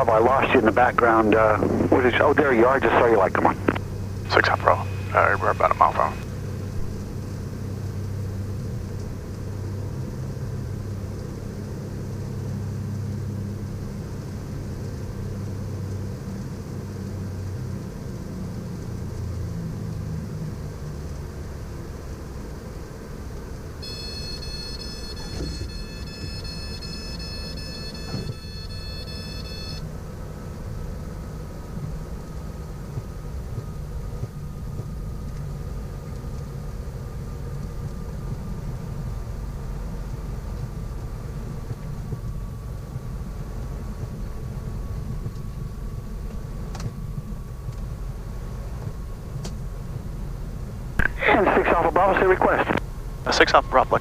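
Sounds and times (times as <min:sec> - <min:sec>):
high warning tone: 0:00.0 - 0:06.2, 0:23.8 - 0:29.8
piston aircraft engines droning: 0:00.0 - 0:54.0.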